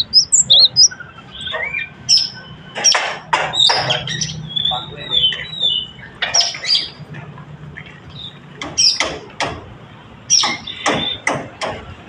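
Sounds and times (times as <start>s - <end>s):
bird calling sharp descending notes: 0.0s - 2.4s.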